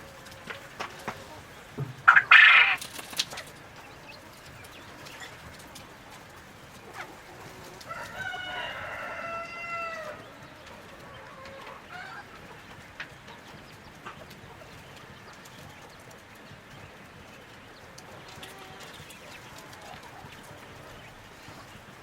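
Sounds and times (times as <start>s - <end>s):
rooster crowing: 7.8s - 10.3s.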